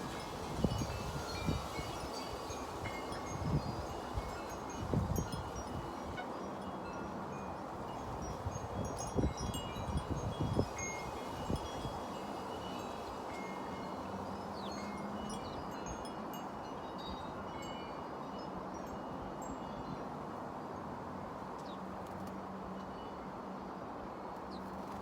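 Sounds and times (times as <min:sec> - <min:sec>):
wind buffeting microphone: 0:00.0 - 0:06.2, 0:07.9 - 0:12.1
wind chimes tinkling: 0:00.0 - 0:20.2.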